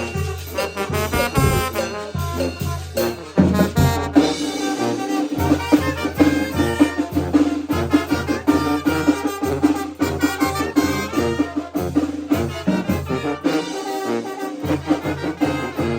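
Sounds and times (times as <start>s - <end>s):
brass band playing: 0.0s - 15.9s
steady bass beat: 1.1s - 1.8s.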